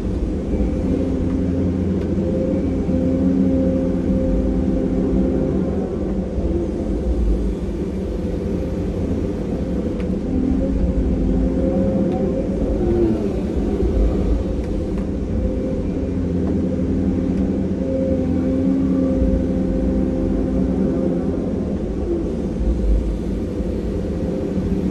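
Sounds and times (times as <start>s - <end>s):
excavator diesel engine rumble: 0.0s - 24.9s.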